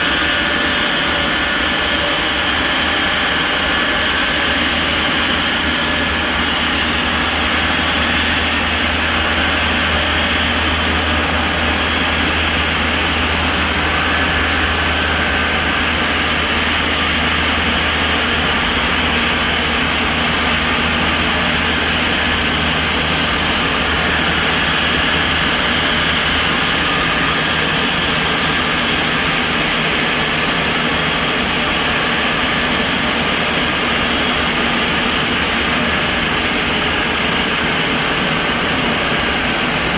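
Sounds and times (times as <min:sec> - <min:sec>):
jet engines droning and whining: 0:00.0 - 0:39.9.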